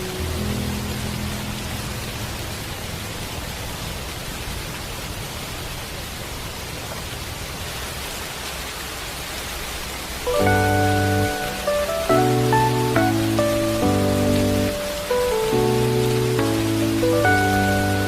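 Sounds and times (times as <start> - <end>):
gentle music sustained notes: 0.0 - 4.3, 10.3 - 18.0
steady rain hiss: 0.0 - 18.0.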